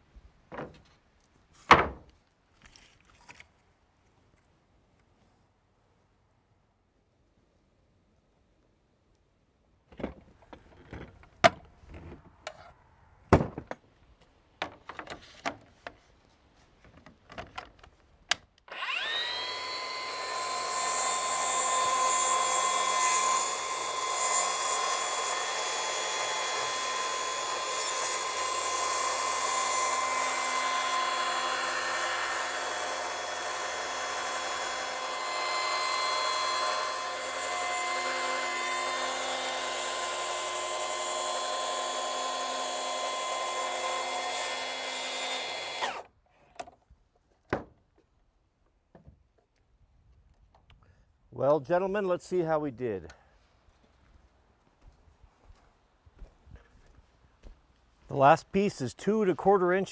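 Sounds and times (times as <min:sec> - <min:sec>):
power tool cutting wood: 0:18.7 - 0:46.1.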